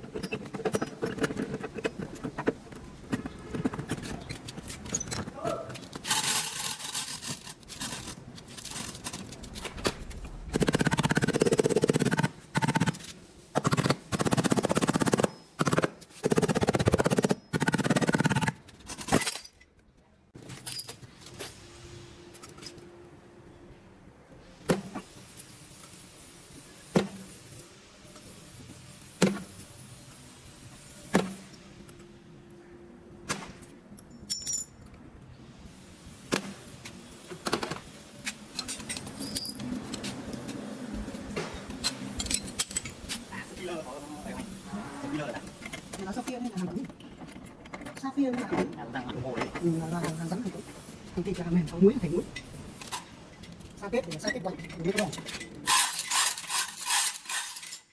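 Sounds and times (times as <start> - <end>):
workshop tool bursts: 55.6 - 57.9.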